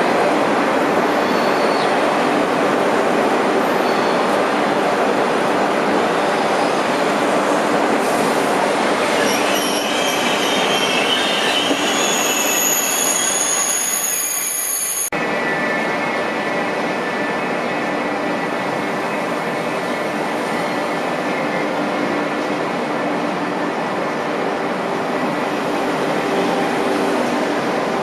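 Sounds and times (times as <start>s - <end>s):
passenger train running: 0.0s - 28.0s
high-pitched wheel squeal: 9.1s - 15.1s.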